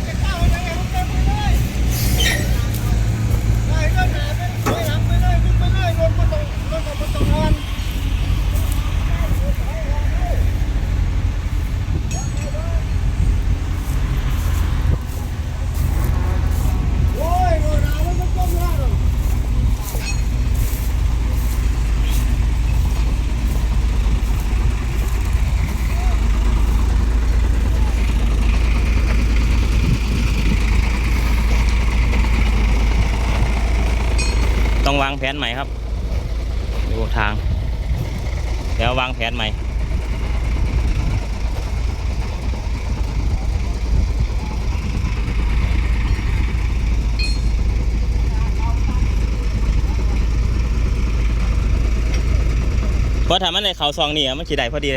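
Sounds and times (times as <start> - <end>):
tractor engine rumbling: 0.0 - 54.9.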